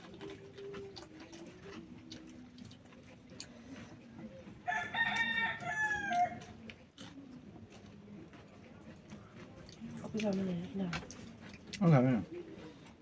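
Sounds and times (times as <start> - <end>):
rooster crowing: 4.7 - 6.5.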